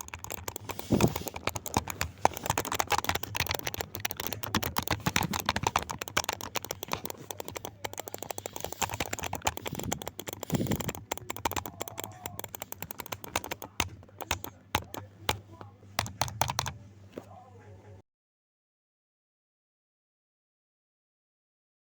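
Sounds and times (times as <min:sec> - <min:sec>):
keyboard typing: 0:00.0 - 0:16.8
steady low hum: 0:00.0 - 0:18.0.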